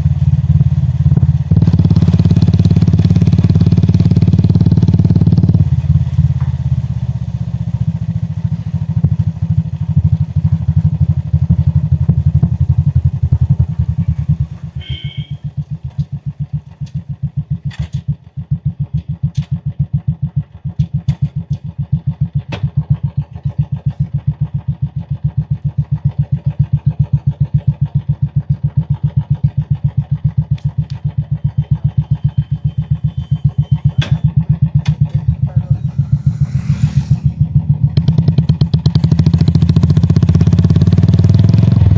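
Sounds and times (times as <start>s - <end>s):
motorcycle engine thumping: 0.0s - 40.8s
short high beep: 14.8s - 15.4s.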